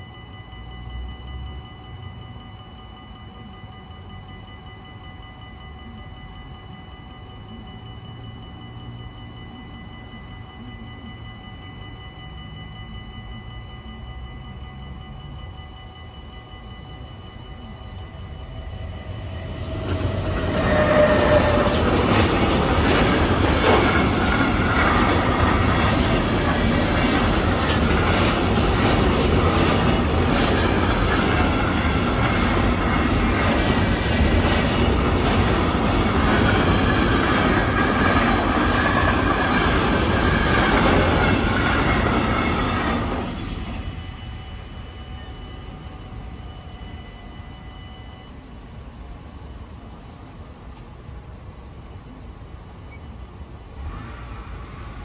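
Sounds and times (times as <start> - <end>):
freight train wheels rumbling: 17.5 - 47.9.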